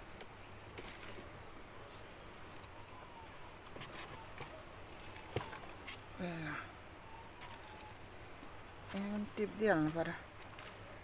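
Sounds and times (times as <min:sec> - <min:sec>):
tomato plants rustling: 0:00.0 - 0:11.0
faint bird call: 0:06.1 - 0:08.1.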